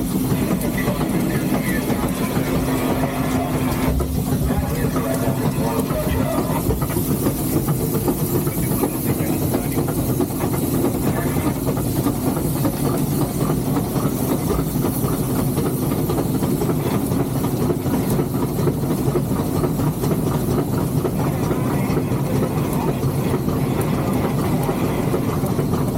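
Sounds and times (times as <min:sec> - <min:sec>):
steam hiss: 0:00.0 - 0:25.5
locomotive mechanical running noise: 0:00.0 - 0:25.9.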